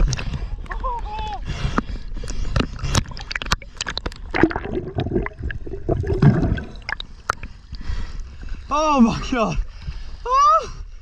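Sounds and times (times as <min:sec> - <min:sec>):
water gurgling and splashing: 0:02.4 - 0:07.5.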